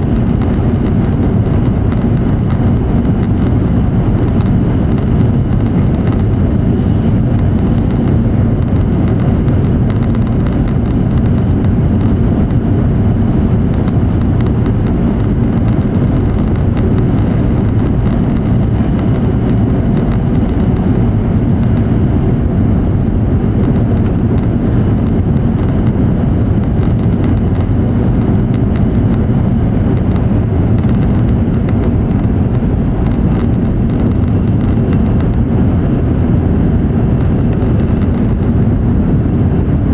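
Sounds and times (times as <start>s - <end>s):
train rumble inside cabin: 0.0s - 39.9s.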